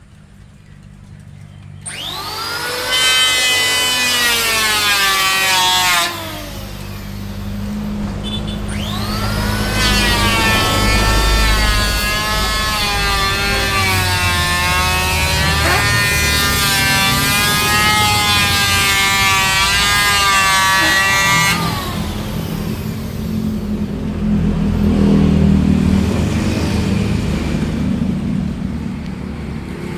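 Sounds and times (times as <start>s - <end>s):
power tool high whine: 1.8s - 24.3s
low rumble: 6.2s - 26.2s.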